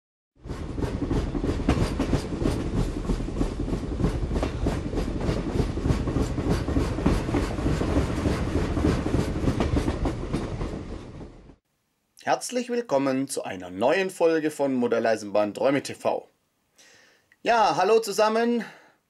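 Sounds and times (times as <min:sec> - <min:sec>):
train wheels clattering: 0:00.4 - 0:11.6.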